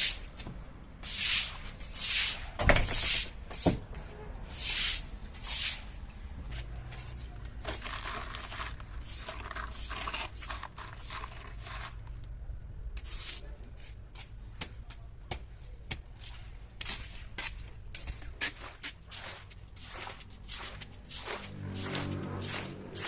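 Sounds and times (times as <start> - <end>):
scrubbing and scraping: 1.0 - 12.2, 16.2 - 23.0.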